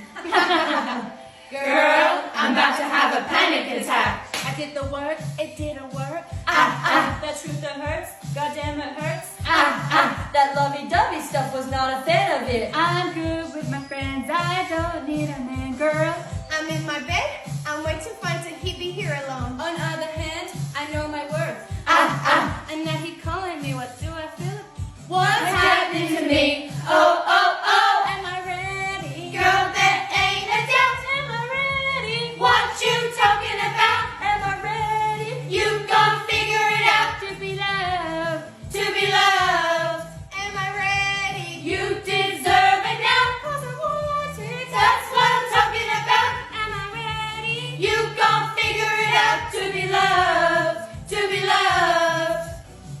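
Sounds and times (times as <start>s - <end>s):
choir singing a cappella: 0.0s - 4.3s, 6.4s - 7.3s, 9.4s - 10.3s, 21.8s - 22.7s, 25.2s - 40.2s, 41.6s - 52.7s.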